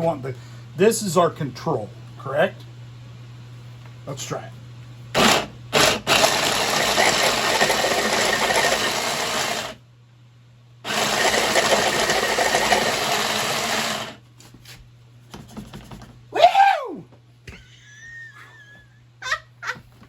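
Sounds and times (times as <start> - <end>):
electric food chopper grinding: 5.1 - 9.8, 10.8 - 14.2.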